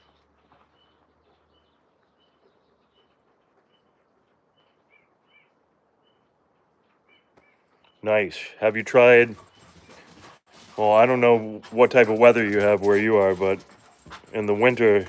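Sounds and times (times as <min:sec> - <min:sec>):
faint high bird calls: 0:00.0 - 0:08.1.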